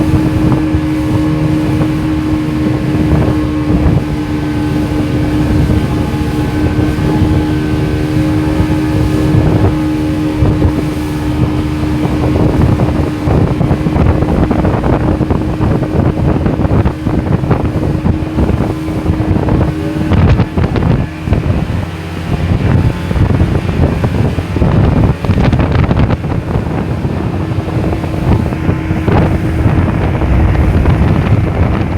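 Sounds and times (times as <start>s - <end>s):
motorboat engine hum: 0.0s - 31.9s
wind buffeting microphone: 0.0s - 31.9s.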